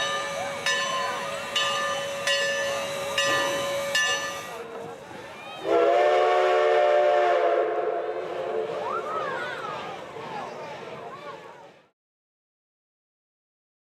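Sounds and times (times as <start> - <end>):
locomotive bell ringing: 0.0 - 4.8
steam whistle blast: 5.6 - 9.0.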